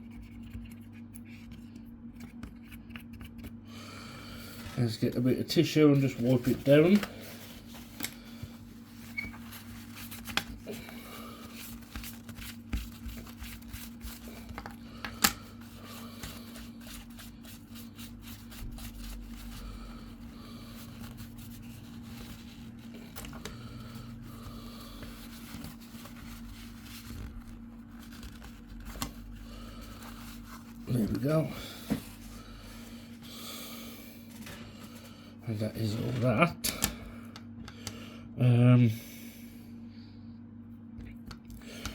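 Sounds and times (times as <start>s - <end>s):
paper tissue rustling: 4.2s - 36.2s.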